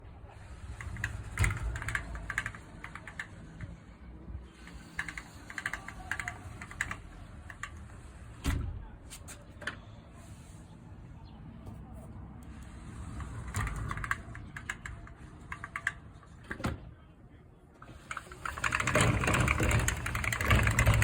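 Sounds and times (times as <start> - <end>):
sliding door rollers rattling: 0.3 - 8.7, 12.6 - 16.7, 17.8 - 21.0.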